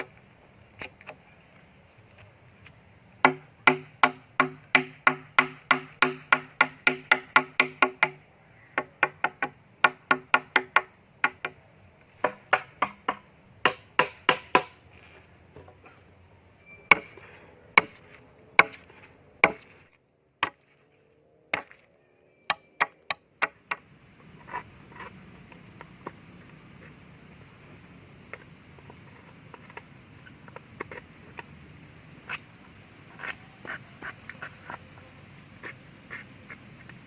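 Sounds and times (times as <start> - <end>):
blade chopping wood: 17.8 - 19.8, 20.4 - 20.8, 21.5 - 21.9.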